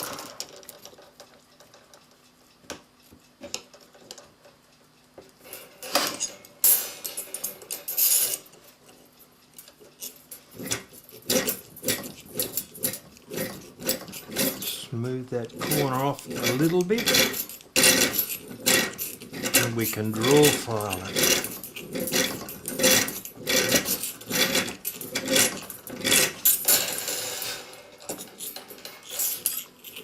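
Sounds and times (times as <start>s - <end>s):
metal tools clinking: 9.6s - 30.0s
metal scraping: 10.0s - 30.0s.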